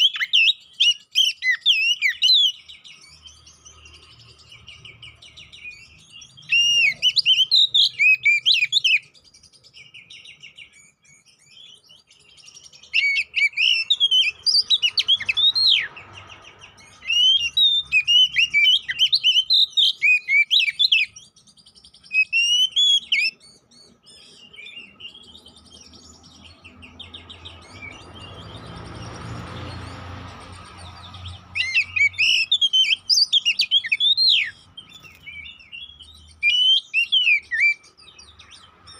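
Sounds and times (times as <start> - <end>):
bird singing chattering song: 0.0 - 38.9.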